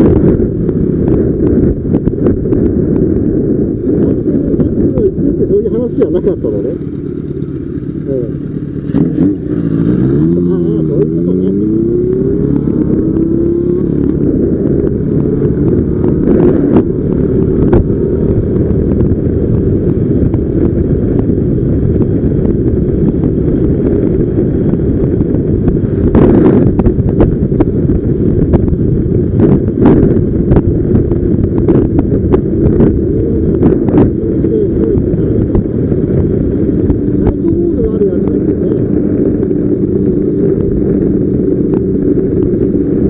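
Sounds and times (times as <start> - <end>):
motorcycle engine accelerating: 0.0 - 43.0
wind buffeting microphone: 0.0 - 43.0.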